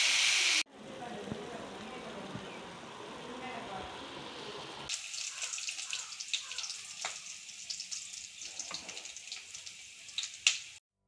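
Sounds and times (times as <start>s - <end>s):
food sizzling in oil: 0.0s - 0.7s, 4.0s - 10.8s.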